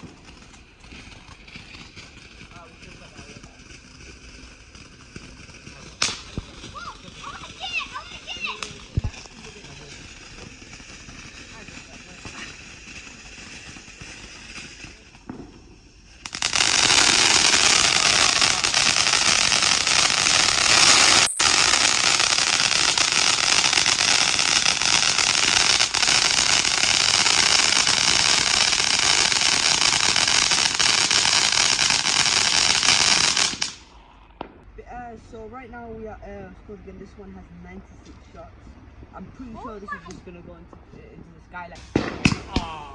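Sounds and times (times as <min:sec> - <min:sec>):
firework fizzing hiss: 0:00.0 - 0:34.2.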